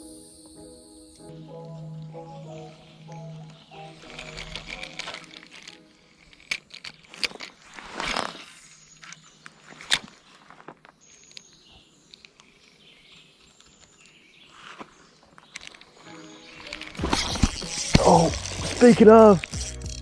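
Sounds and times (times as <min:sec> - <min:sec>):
sharp clicks of fishing gear: 0:04.0 - 0:09.2, 0:16.6 - 0:20.0
rustling swish: 0:07.6 - 0:08.9.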